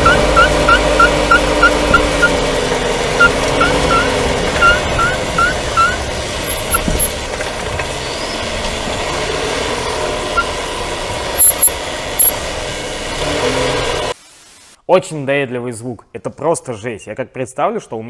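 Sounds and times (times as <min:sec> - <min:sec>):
chirping squeaks: 0:00.0 - 0:02.4, 0:03.2 - 0:07.2, 0:11.4 - 0:12.4
car driveline running noise: 0:00.0 - 0:14.2
loud knocks: 0:06.6 - 0:08.0.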